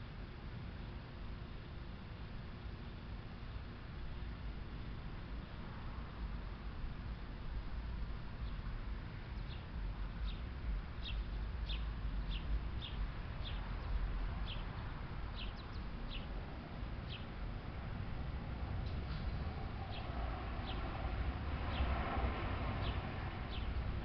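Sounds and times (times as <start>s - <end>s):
low steady rumble: 0.0s - 24.0s
bird chirping: 9.4s - 10.4s, 11.0s - 16.3s, 17.0s - 17.3s, 22.8s - 23.8s.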